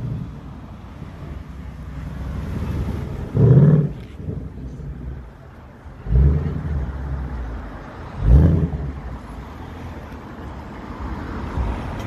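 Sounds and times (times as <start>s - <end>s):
car exhaust rumbling: 0.0s - 9.4s.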